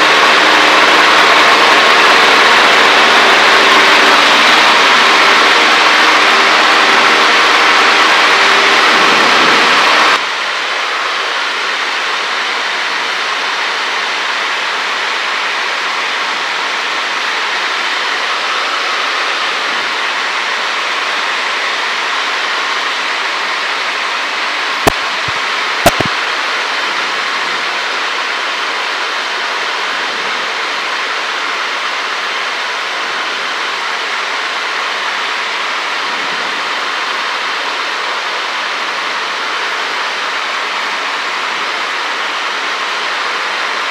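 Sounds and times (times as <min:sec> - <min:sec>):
aircraft cockpit rushing hiss: 0:00.0 - 0:43.9
sharp clicks: 0:24.8 - 0:26.2.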